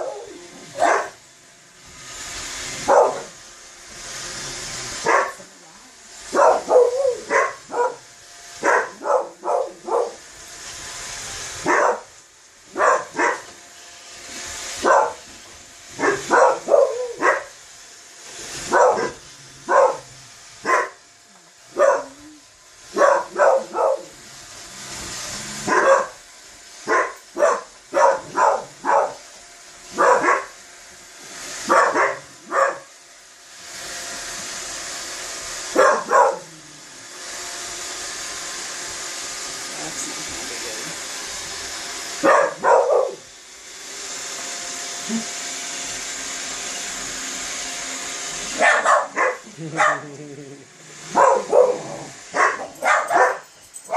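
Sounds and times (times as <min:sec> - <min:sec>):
dog barking: 0:00.0 - 0:01.2, 0:02.8 - 0:03.3, 0:05.0 - 0:05.4, 0:06.3 - 0:08.0, 0:08.6 - 0:10.2, 0:11.6 - 0:12.1, 0:12.7 - 0:13.5, 0:14.8 - 0:15.2, 0:16.0 - 0:17.5, 0:18.7 - 0:21.0, 0:21.7 - 0:22.2, 0:22.9 - 0:24.1, 0:25.7 - 0:26.2, 0:26.9 - 0:29.2, 0:29.9 - 0:30.5, 0:31.7 - 0:32.9, 0:35.7 - 0:36.5, 0:42.2 - 0:43.2, 0:48.6 - 0:50.1, 0:51.1 - 0:53.5
robot vacuum whirring: 0:00.0 - 0:53.9.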